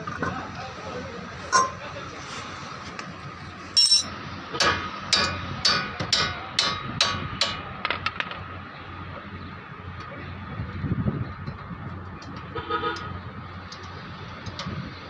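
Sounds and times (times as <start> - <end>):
hammer striking metal: 3.8 - 7.7.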